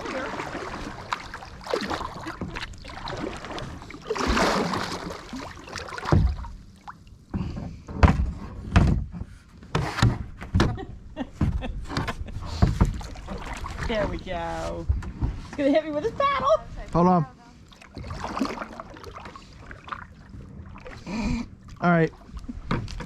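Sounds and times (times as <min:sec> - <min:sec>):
paddle splashing water: 0:00.0 - 0:07.1, 0:12.0 - 0:16.4, 0:17.6 - 0:23.0.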